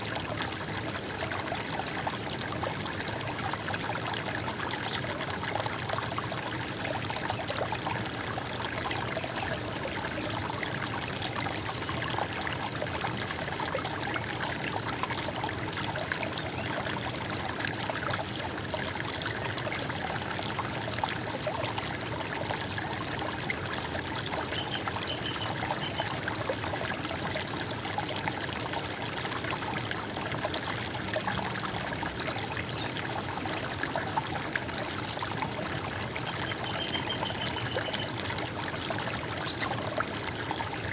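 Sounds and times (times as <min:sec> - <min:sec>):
stream water gurgling: 0:00.0 - 0:40.9
faint bird chirps: 0:24.5 - 0:26.1, 0:36.4 - 0:38.1.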